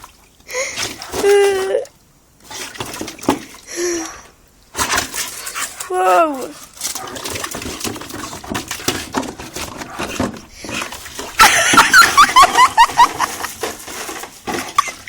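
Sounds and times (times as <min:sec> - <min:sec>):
rustling and shuffling: 0:04.2 - 0:15.0.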